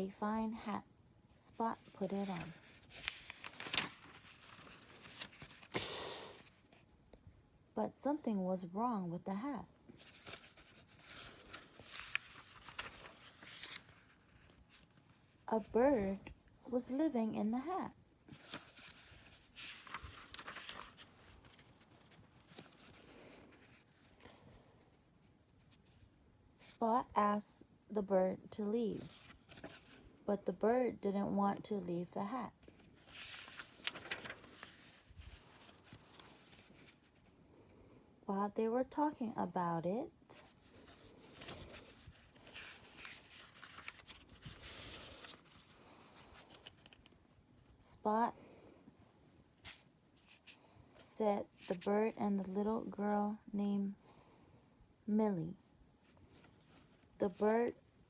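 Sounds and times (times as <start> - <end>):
paper page turning: 1.8 - 6.5, 10.0 - 15.2, 18.3 - 24.1, 29.0 - 30.0, 32.7 - 37.3, 40.4 - 47.2.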